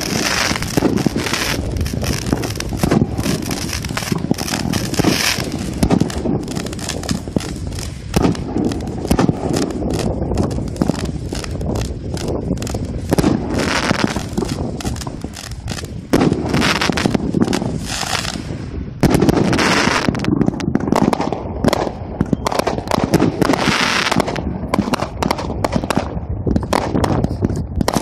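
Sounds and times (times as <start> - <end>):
firework hissing: 0.0 - 20.3, 23.4 - 24.3
firework cake pops and crackling: 0.0 - 28.0.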